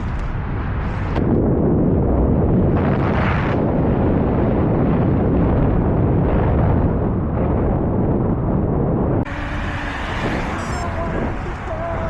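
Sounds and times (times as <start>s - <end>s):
rush of air: 0.0s - 7.6s
wind buffeting microphone: 0.0s - 12.0s.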